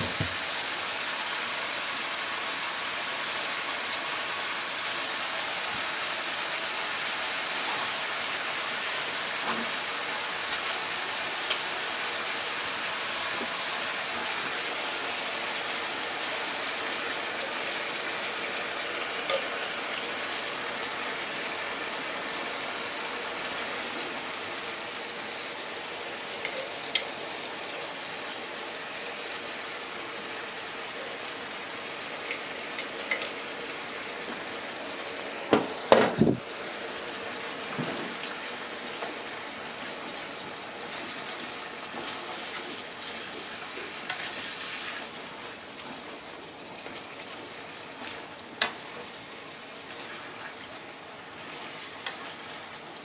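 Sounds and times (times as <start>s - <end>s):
food sizzling in a frying pan: 0.0s - 53.0s.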